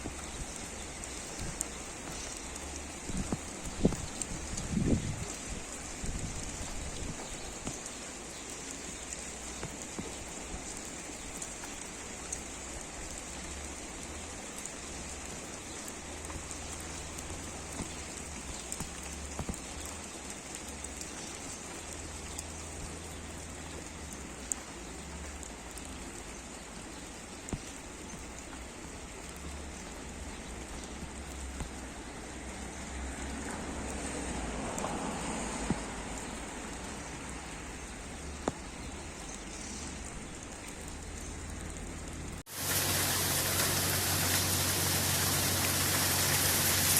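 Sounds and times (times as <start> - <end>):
steady rain falling: 0.0 - 46.9.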